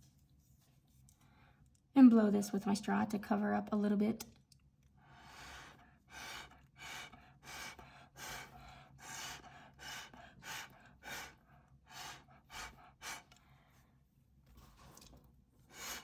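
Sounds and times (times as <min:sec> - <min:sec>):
puffs of breath through a straw: 0:05.0 - 0:13.8, 0:15.7 - 0:16.0.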